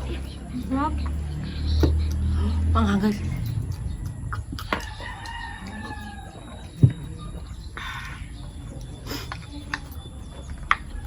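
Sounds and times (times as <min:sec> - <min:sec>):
rooster crowing: 0:03.9 - 0:08.5, 0:10.7 - 0:11.0.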